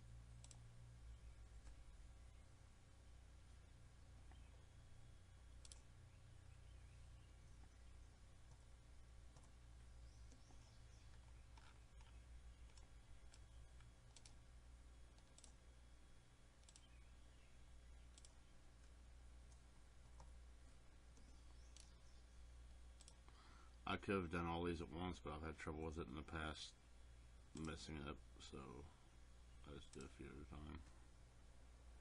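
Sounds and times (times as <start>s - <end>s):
low steady hum: 0.0s - 32.0s
computer mouse clicks: 0.3s - 0.7s, 5.5s - 5.9s, 9.3s - 9.6s, 10.2s - 14.4s, 15.1s - 15.6s, 16.6s - 17.0s, 18.0s - 20.4s, 21.1s - 22.0s, 23.0s - 23.4s, 27.6s - 27.8s.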